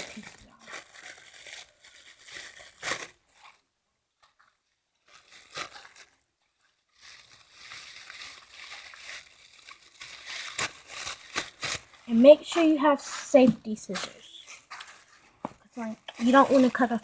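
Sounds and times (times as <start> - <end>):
paper rustling: 6.9 - 17.0
scissors snipping paper: 10.4 - 15.0, 15.8 - 17.0.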